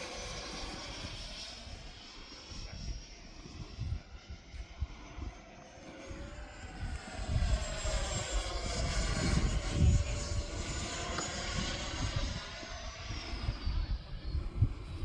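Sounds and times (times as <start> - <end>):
model jet whine passing: 0.0 - 15.0
wind rumbling on microphone: 0.0 - 15.0.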